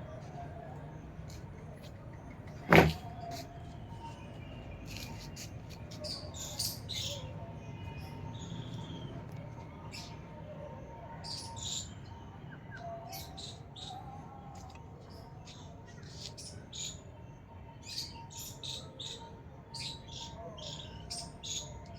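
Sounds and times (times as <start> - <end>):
small birds chirping: 0.0 - 21.9.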